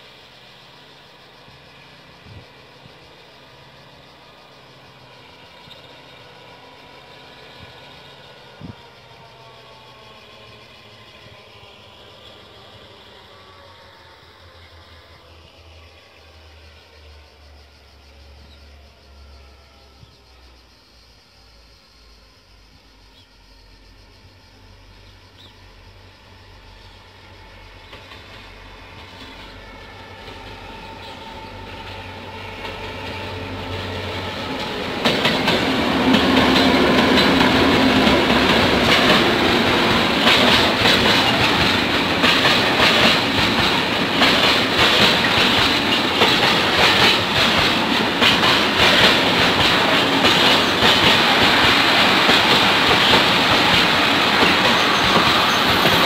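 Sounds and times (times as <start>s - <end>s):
diesel train passing: 0.0s - 56.0s
wheels clacking over rails: 30.2s - 56.0s.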